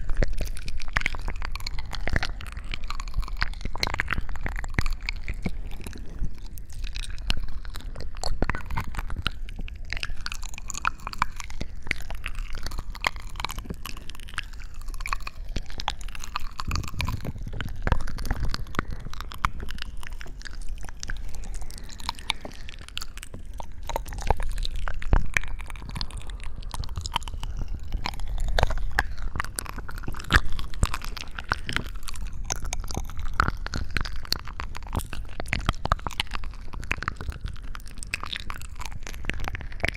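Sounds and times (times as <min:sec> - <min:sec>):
small crackles and squishes: 0:00.0 - 0:39.9.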